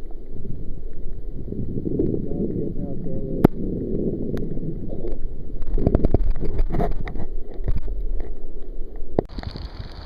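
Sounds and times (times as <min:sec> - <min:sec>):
wind buffeting microphone: 0:01.3 - 0:07.2.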